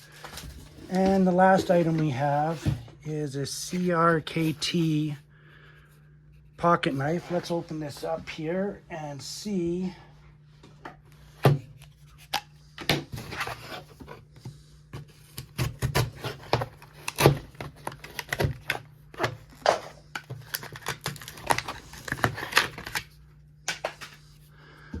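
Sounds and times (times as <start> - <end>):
cardboard and plastic rustling: 0.0 - 2.9, 11.5 - 25.0
packaging clicks and scrapes: 15.0 - 24.3.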